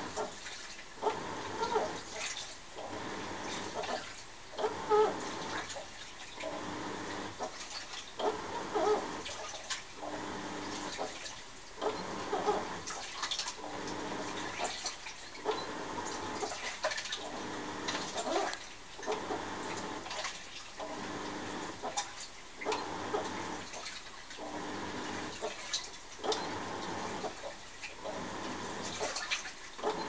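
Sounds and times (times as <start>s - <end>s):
washing machine water sloshing: 0.0s - 30.0s
short squeaky whine: 1.0s - 2.1s, 8.2s - 9.4s, 11.8s - 12.9s, 15.4s - 16.6s, 26.2s - 27.3s.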